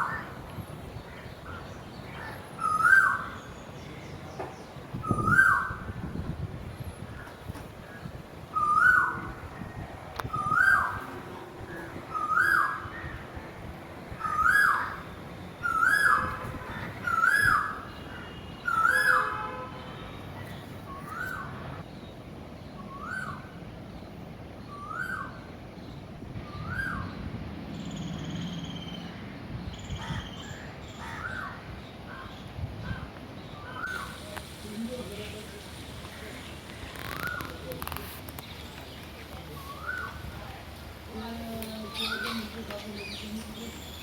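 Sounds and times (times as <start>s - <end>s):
bird calling: 1.2s - 3.5s, 33.6s - 44.0s.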